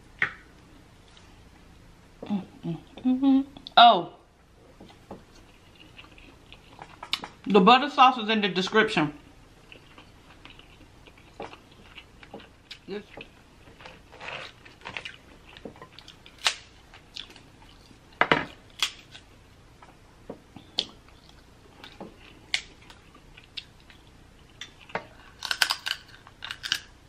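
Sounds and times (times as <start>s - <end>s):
chewing and mouth smacks: 5.3s - 7.4s, 9.6s - 16.4s, 20.6s - 26.8s.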